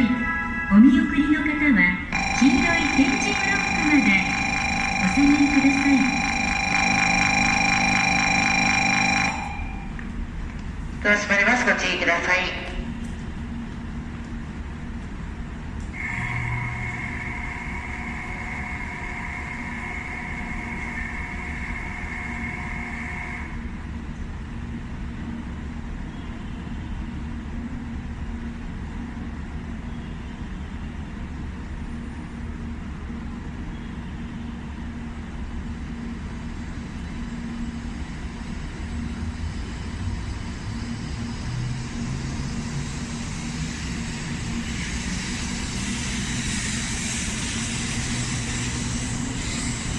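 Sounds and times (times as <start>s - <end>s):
low steady hum: 0.0s - 21.4s
electronic warning tone: 2.1s - 10.0s, 16.0s - 23.6s
train pulling out: 2.2s - 10.1s, 35.6s - 49.9s.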